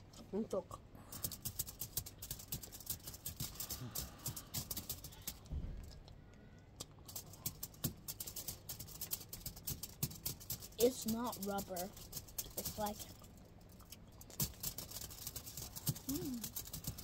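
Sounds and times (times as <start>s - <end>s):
chewing sticky sweet: 10.8s - 14.6s, 15.7s - 17.0s.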